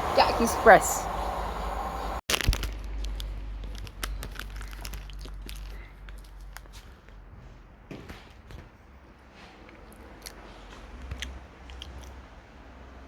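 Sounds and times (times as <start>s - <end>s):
low rumble: 0.0s - 6.0s
small clicks and crinkling: 2.3s - 7.2s.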